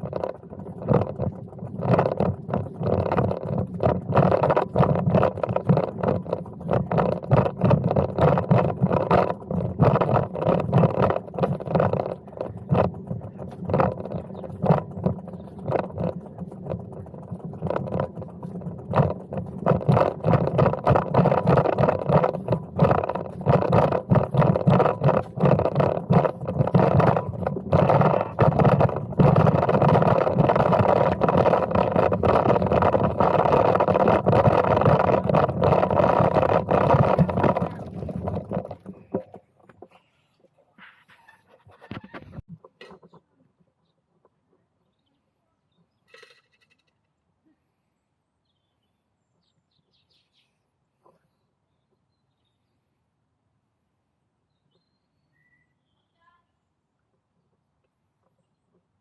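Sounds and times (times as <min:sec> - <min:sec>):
wind on microphone: 0:00.0 - 0:39.3
bicycle riding rumble: 0:00.0 - 0:43.3.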